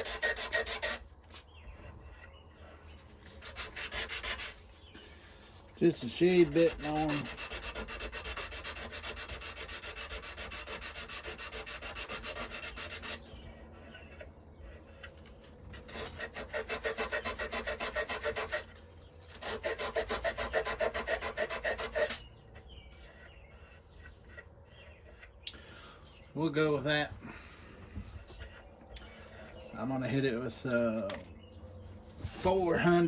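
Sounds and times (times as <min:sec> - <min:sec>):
sandpaper rubbing on knife: 0:00.0 - 0:01.0, 0:03.3 - 0:04.8, 0:05.8 - 0:14.2, 0:15.8 - 0:22.2.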